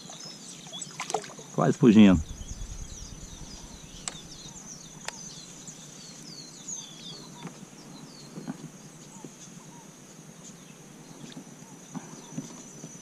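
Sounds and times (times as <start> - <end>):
steady high-pitched whine: 1.6 - 7.0
birds chirping: 1.6 - 7.5
sharp clicks: 2.3 - 5.2.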